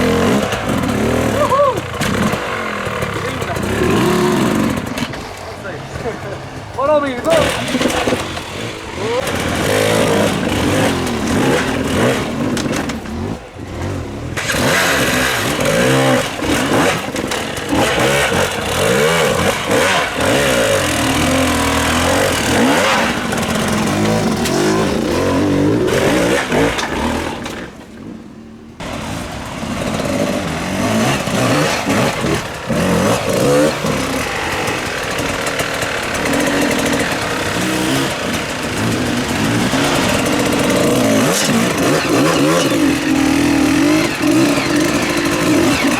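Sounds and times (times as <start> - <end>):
motorcycle engines revving: 0.0 - 45.9.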